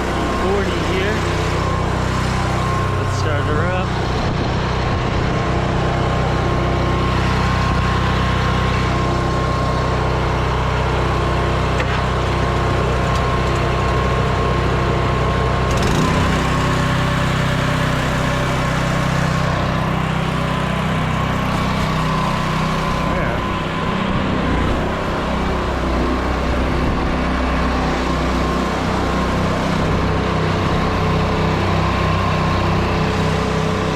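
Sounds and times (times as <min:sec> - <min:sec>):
small gasoline engine running: 0:00.0 - 0:33.9.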